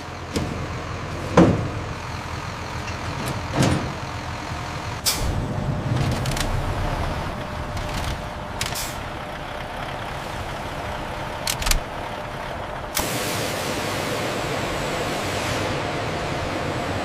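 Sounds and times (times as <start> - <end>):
factory machinery hum: 0.0 - 17.0
sharp clicks: 7.8 - 9.0, 11.4 - 11.8.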